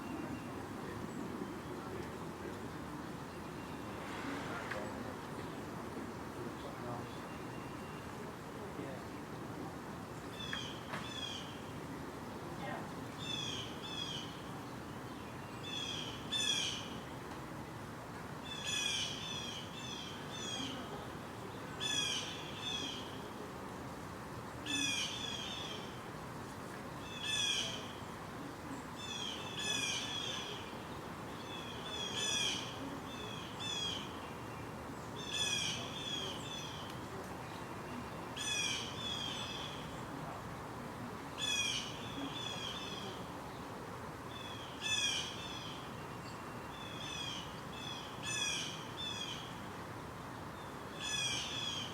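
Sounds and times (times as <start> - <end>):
songbird calling: 15.1 - 17.0, 18.5 - 21.0, 21.7 - 23.2, 24.6 - 26.0, 27.0 - 40.1, 41.4 - 43.6, 44.3 - 49.6, 50.5 - 51.9.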